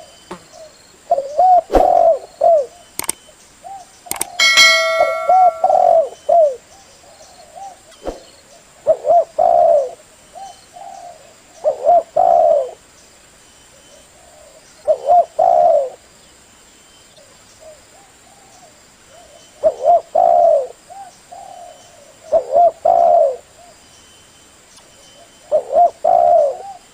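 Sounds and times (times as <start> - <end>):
dove cooing: 8.9 - 12.8, 14.9 - 16.0, 19.6 - 23.4, 25.5 - 26.8.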